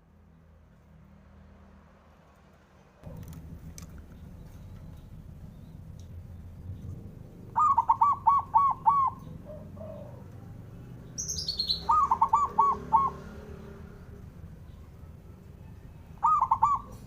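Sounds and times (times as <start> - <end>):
dove cooing: 7.4 - 10.7, 11.3 - 14.2, 15.7 - 17.0
bird descending chirp: 11.1 - 13.3.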